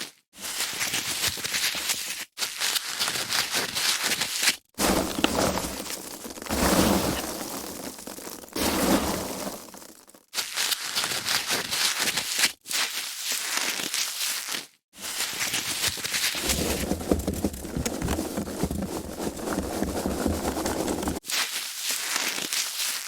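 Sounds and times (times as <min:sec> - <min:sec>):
foam squeaking and scrunching: 0:16.3 - 0:21.2.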